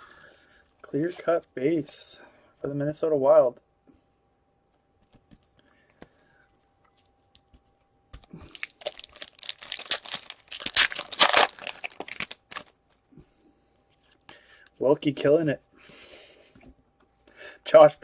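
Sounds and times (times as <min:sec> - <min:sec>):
foil wrapper tearing and crinkling: 0:08.4 - 0:12.8.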